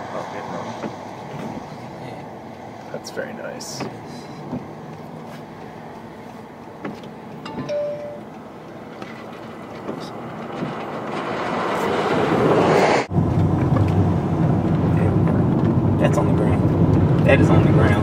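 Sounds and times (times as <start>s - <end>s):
steady low rumble: 12.0s - 18.0s.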